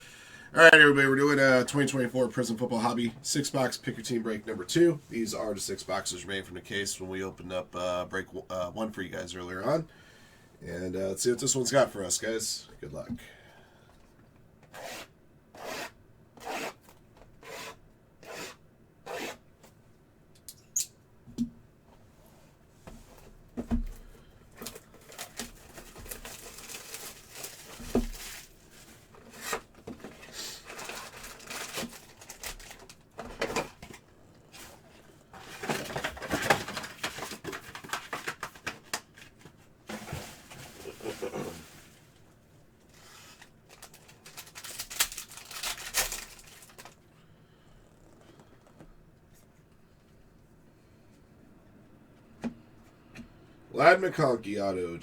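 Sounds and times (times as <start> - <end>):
packaging rustling: 24.6 - 47.1
wrapper tearing and crinkling: 25.0 - 28.6, 30.6 - 33.0, 43.3 - 47.0.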